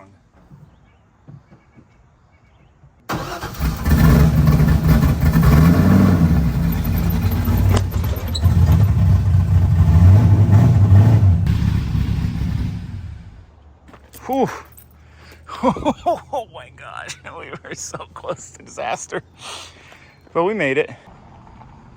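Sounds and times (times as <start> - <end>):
car engine at low throttle: 3.7 - 13.8.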